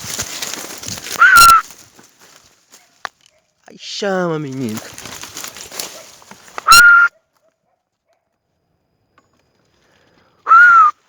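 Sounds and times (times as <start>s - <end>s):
rustling through dry brush: 0.0s - 7.1s
dog barking: 2.8s - 3.6s, 5.8s - 8.4s.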